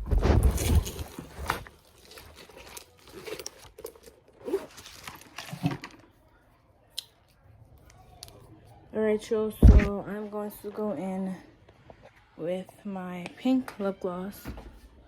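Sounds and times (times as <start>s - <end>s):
rustling and crinkling: 0.0s - 6.2s.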